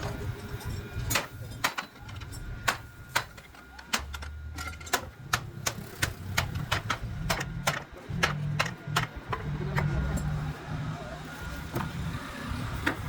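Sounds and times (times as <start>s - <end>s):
hand tools knocking on wood: 4.9s - 10.0s.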